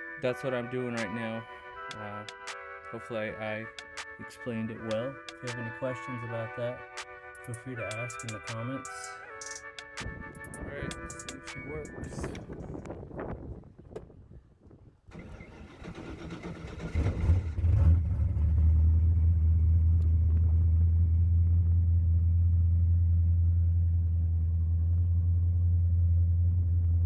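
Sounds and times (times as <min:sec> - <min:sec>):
car engine starting and idling: 0:15.1 - 0:27.0.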